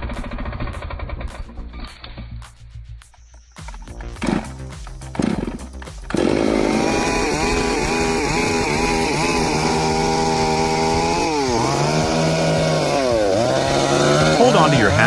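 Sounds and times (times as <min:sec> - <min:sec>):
chainsaw running at high revs: 0:04.2 - 0:15.0.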